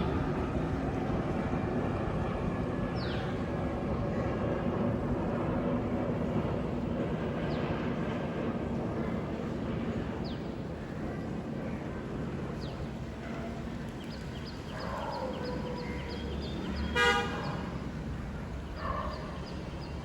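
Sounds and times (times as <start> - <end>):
vehicle horn toot: 17.0 - 17.4.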